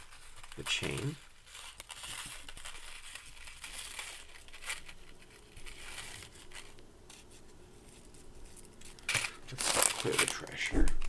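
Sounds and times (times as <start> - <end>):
crinkling and rustling: 0.0 - 11.0.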